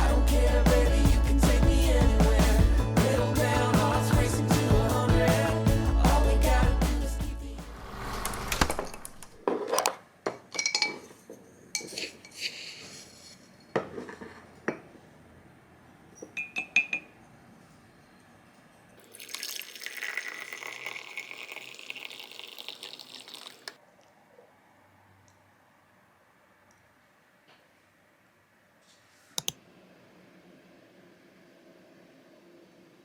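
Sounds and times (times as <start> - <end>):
dishes clinking and knocking: 16.2 - 17.2
ringing glass clinks: 16.2 - 17.2
water running: 19.0 - 23.8.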